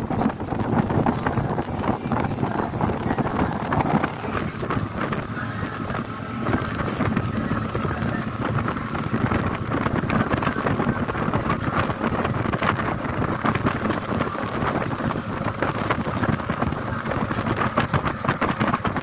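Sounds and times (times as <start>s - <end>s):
motorboat motor running: 0.0s - 19.0s
wind buffeting microphone: 0.0s - 19.0s.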